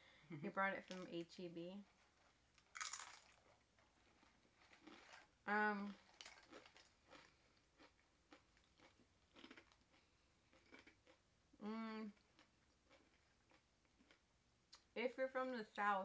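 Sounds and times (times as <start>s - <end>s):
chewing with crunches: 1.8s - 11.2s, 12.1s - 14.2s
person humming: 11.6s - 12.2s.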